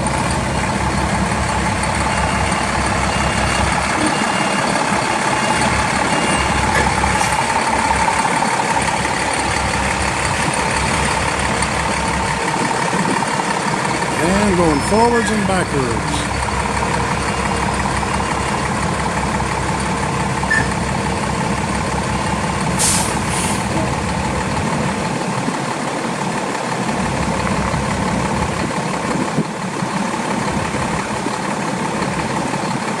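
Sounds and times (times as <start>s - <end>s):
diesel engine running: 0.0s - 33.0s
air brake hisses: 22.8s - 23.7s.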